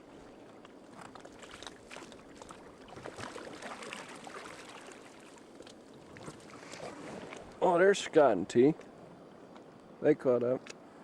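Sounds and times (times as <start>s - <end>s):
water splashing around a canoe: 0.0s - 8.2s.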